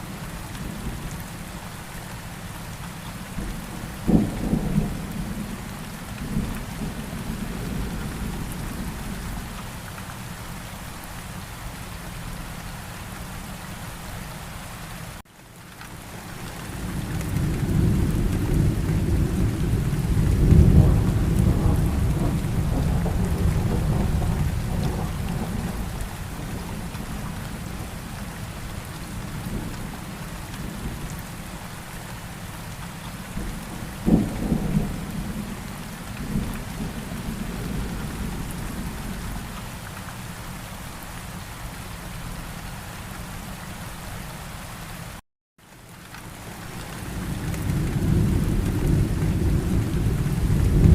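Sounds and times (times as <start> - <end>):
steady rain: 0.0 - 50.9
rolling thunder: 16.9 - 28.0, 33.4 - 39.4, 47.2 - 50.9
sharp thunderclap: 47.6 - 50.9.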